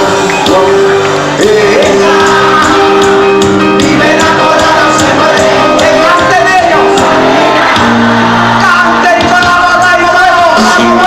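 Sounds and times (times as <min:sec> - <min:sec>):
person singing: 0:00.0 - 0:07.5
band playing dance beat: 0:00.0 - 0:11.0.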